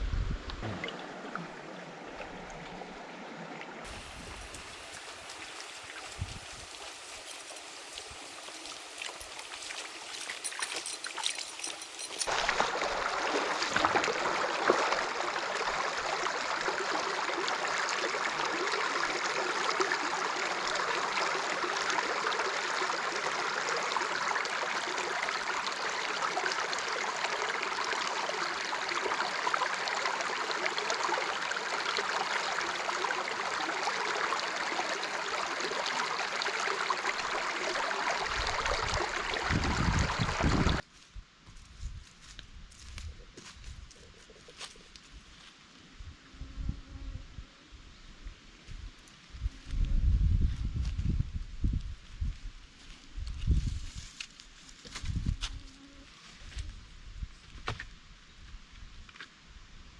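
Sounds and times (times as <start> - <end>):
stream water rushing: 0.5 - 40.8.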